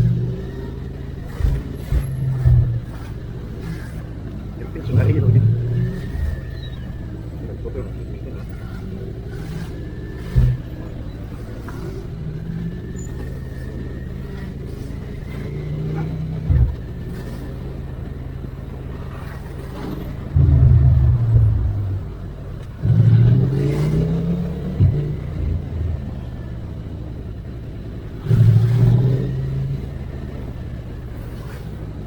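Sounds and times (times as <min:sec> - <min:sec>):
motorcycle engine running: 0:20.2 - 0:23.0.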